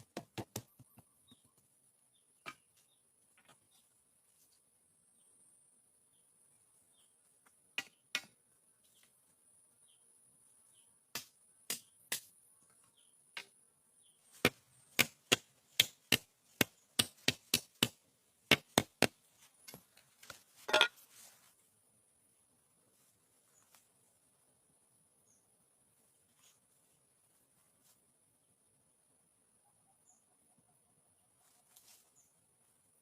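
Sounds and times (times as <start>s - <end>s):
chopping strikes on wood: 0.0s - 1.0s, 11.1s - 12.3s, 14.4s - 19.2s.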